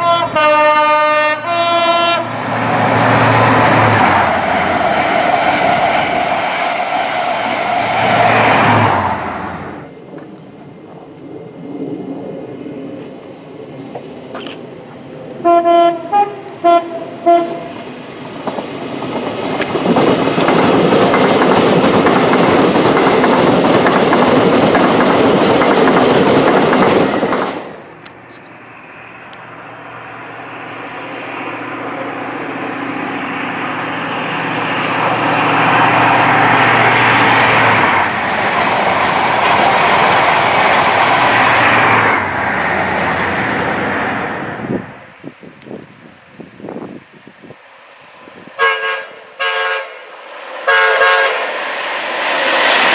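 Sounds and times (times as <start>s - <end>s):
train horn toots: 0.0s - 2.4s, 15.4s - 17.8s, 48.6s - 51.5s
train passing: 0.0s - 52.9s.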